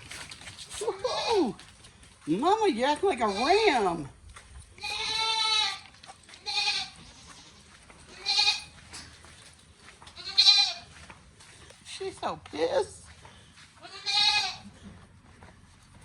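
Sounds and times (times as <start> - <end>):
goat bleating: 0.8 - 1.7, 3.1 - 3.9, 4.8 - 8.8, 10.0 - 11.0, 13.8 - 14.8.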